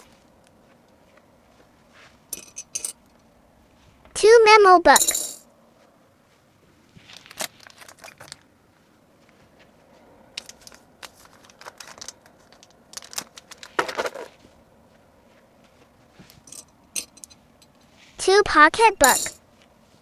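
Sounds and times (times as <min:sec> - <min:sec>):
packaging crinkling and rustling: 0:07.0 - 0:08.5, 0:10.4 - 0:14.4.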